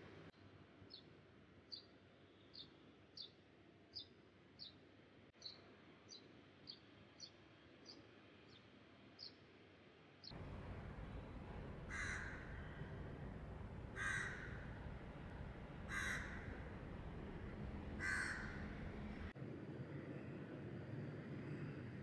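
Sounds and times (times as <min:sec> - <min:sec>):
outdoor background noise: 0:00.0 - 0:22.0
bird calling: 0:10.4 - 0:19.3.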